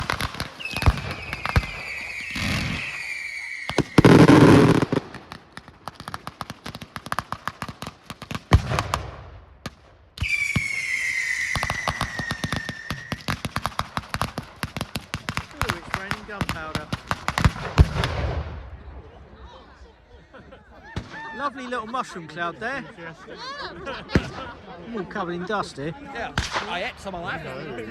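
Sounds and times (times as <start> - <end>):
firework crackles: 0.0 - 18.6
firework whistle falling in pitch: 0.7 - 4.2, 10.2 - 13.2.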